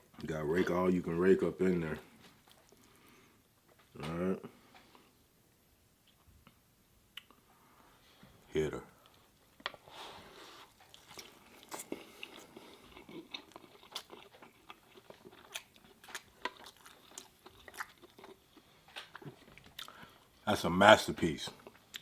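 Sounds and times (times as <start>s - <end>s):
person chewing food: 2.2s - 3.9s, 9.0s - 20.4s, 21.6s - 22.0s.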